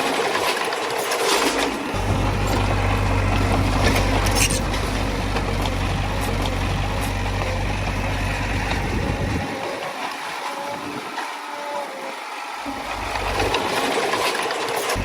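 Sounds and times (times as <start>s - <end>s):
heavy machinery diesel engine rumbling: 1.6s - 9.9s, 12.6s - 15.0s.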